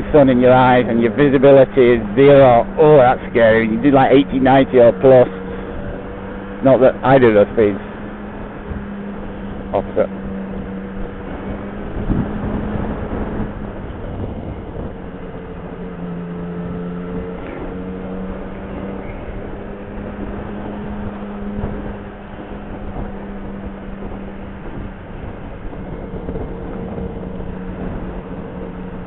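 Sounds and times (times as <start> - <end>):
motorcycle engine cruising: 0.0 - 29.0
road rumble: 0.0 - 29.0
wind: 0.0 - 29.0.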